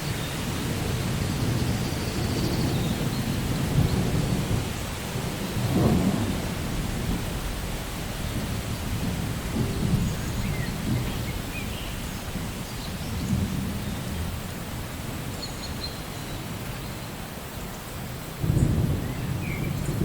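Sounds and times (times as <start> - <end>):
low rolling thunder: 0.0 - 15.4, 18.4 - 20.0
steady rain: 0.0 - 20.0.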